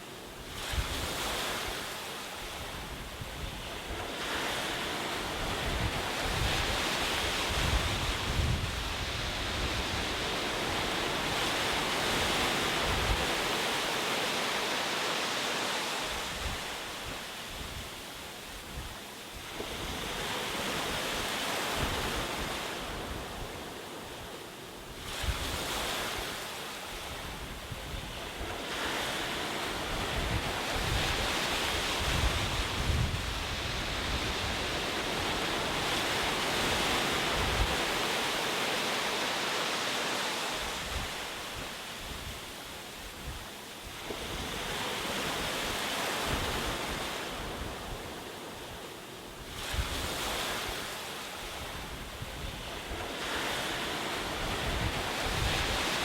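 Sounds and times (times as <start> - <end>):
ocean waves breaking on shore: 0.0 - 56.0
wind rumbling on microphone: 0.4 - 13.7, 24.9 - 38.6, 49.4 - 56.0.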